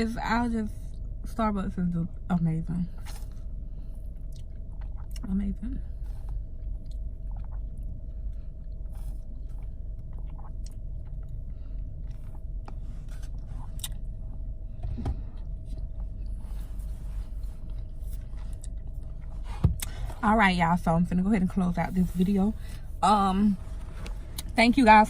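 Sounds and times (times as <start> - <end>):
steady low hum: 0.0 - 25.0
person chewing food: 3.0 - 5.3, 6.0 - 20.2.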